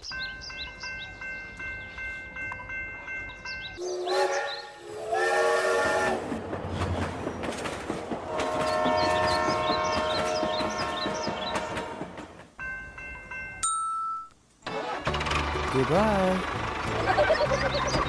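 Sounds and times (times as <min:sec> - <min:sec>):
multi-tone train horn: 0:03.8 - 0:06.4, 0:08.3 - 0:12.3.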